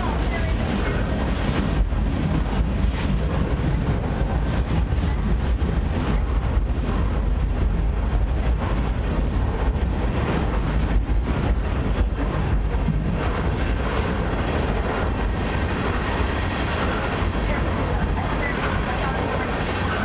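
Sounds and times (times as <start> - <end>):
steel wheels rumbling on rails: 0.0 - 20.0.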